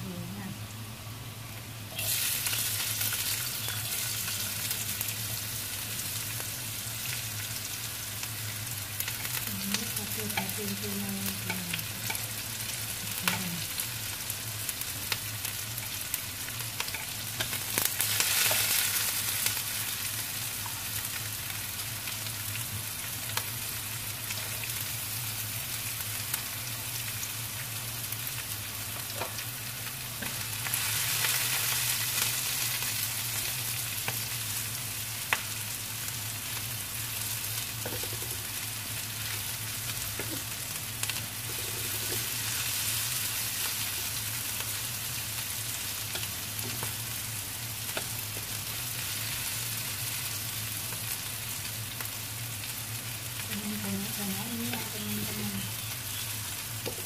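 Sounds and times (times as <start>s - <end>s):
low steady hum: 0.0s - 17.9s
food sizzling in hot oil: 0.0s - 57.0s
spatula scraping and tapping pan: 37.8s - 38.4s.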